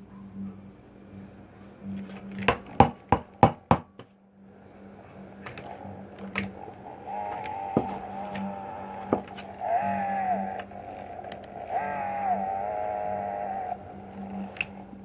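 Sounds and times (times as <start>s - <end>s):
light fixture whining: 4.4s - 15.0s.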